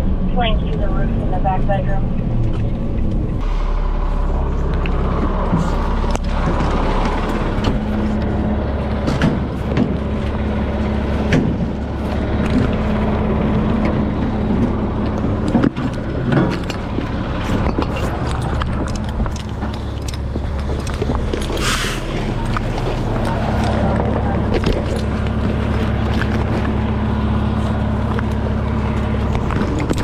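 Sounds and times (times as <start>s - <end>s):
road noise: 0.0s - 30.0s
truck engine drone: 0.0s - 30.0s
rattles and knocks: 4.4s - 21.6s.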